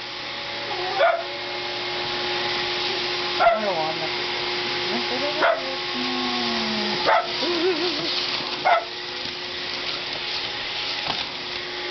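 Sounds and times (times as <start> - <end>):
vacuum cleaner running: 0.0 - 11.9
dog whining: 0.6 - 1.3, 5.5 - 9.0
small dogs barking: 0.8 - 1.3, 3.4 - 3.7, 5.4 - 5.7, 6.9 - 9.0.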